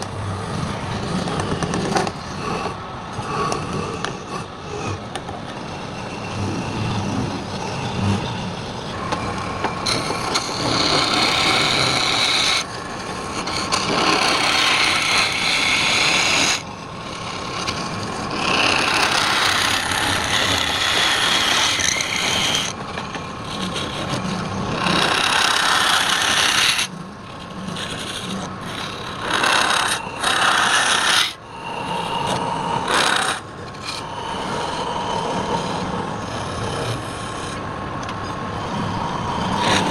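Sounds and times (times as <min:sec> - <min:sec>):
wood rasping on a lathe: 0:00.0 - 0:37.7, 0:38.5 - 0:39.9
quieter steady lathe sound: 0:00.0 - 0:39.9.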